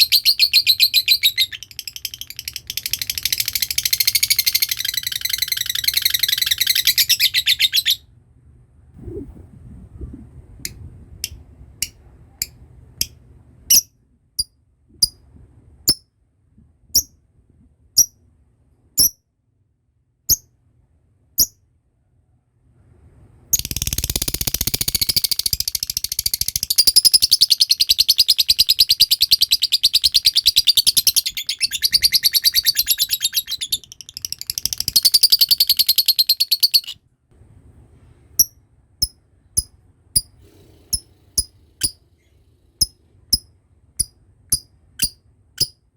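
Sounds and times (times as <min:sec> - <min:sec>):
lovebird chirps: 0:00.0 - 0:08.0, 0:12.4 - 0:13.9, 0:19.0 - 0:19.2, 0:23.5 - 0:37.0, 0:42.8 - 0:45.8
rapid chattering bird trill: 0:00.0 - 0:08.0, 0:23.6 - 0:37.0.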